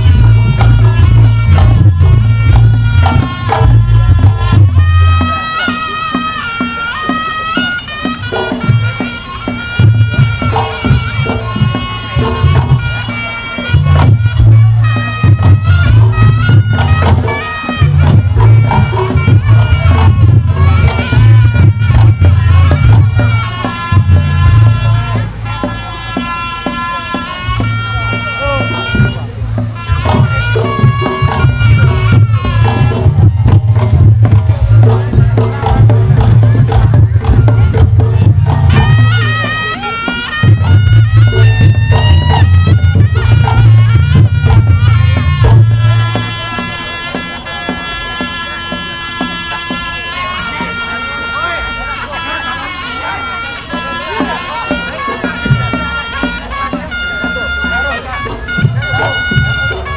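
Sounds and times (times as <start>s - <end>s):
heavy low booming strokes: 0.0s - 5.5s, 8.3s - 26.8s, 27.4s - 46.9s
clashing percussion: 0.0s - 59.9s
shawm playing nasal melody: 0.0s - 59.9s
steady drumming: 0.0s - 59.9s.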